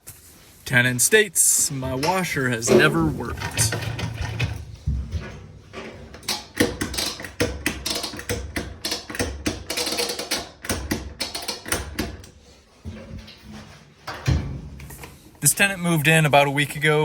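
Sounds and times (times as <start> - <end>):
rapid mechanical clicking and tapping: 6.1 - 12.4.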